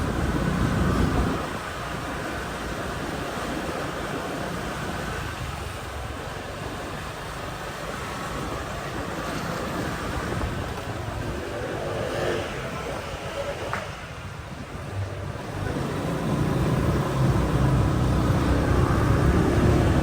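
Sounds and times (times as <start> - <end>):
wind on microphone: 0.0 - 2.3, 7.7 - 20.0
street traffic: 0.0 - 20.0.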